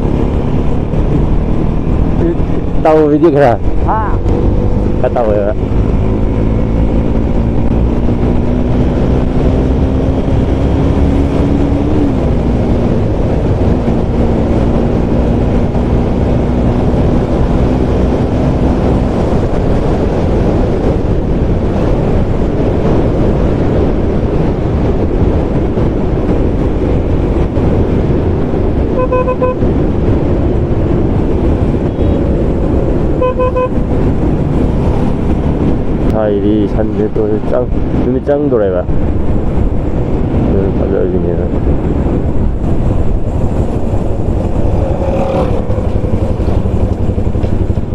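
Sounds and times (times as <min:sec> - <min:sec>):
motorcycle engine hum: 0:00.0 - 0:47.9
rushing wind and road noise: 0:00.0 - 0:47.9
vehicle horn beeps: 0:29.0 - 0:29.6, 0:33.2 - 0:33.8.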